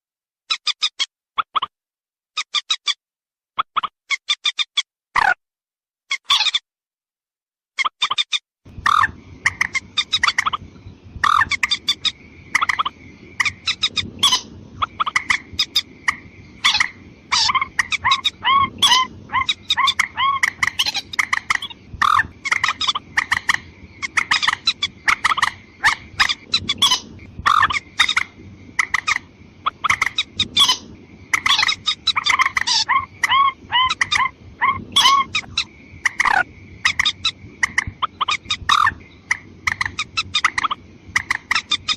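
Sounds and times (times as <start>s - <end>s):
watercock calls: 8.8s - 10.6s, 11.2s - 41.9s.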